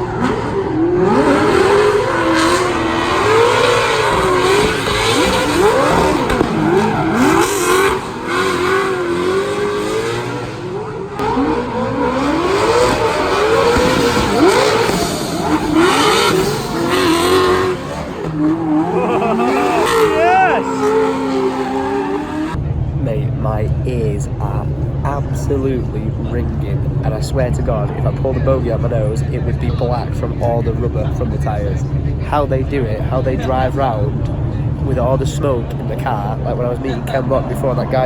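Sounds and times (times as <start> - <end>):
tyre noise: 0.0 - 24.3
car engine revving hard: 0.0 - 38.0.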